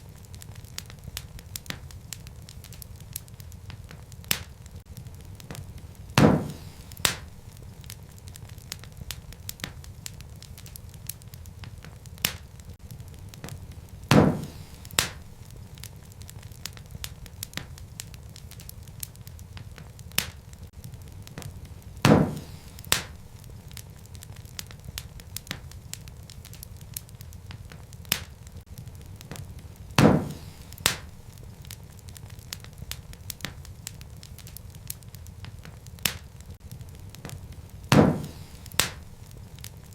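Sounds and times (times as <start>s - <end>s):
loud pops from fire: 0.0s - 39.9s
wood fire crackling: 0.0s - 39.9s.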